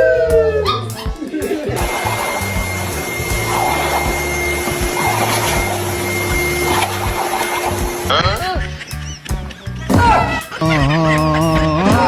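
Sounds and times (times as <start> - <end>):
background music: 0.0 - 12.0
electric appliance motor whine: 1.8 - 8.1.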